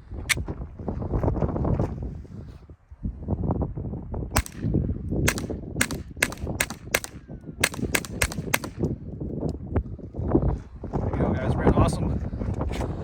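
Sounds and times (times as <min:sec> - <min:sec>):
suppressed pistol shots: 0:04.4 - 0:08.9.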